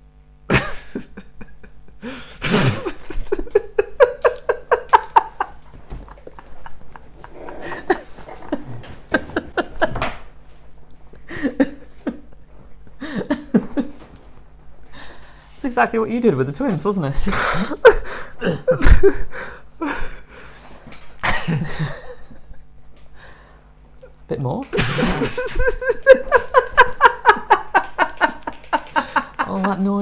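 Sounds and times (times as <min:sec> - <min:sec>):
people laughing: 0:00.5 - 0:10.3, 0:11.1 - 0:14.2, 0:17.2 - 0:20.1, 0:21.2 - 0:22.6, 0:24.7 - 0:30.0.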